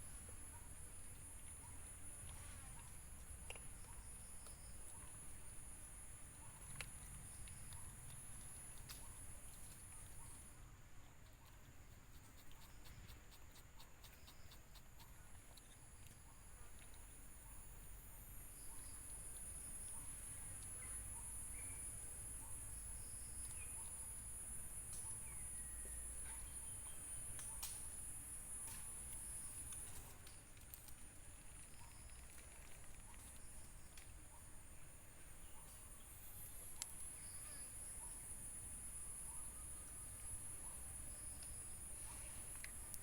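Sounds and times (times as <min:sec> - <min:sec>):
insect drone: 0:00.0 - 0:43.0
bird chirps: 0:18.3 - 0:24.1, 0:35.2 - 0:38.5
faint clicks: 0:28.6 - 0:34.2, 0:36.7 - 0:37.1, 0:41.3 - 0:43.0.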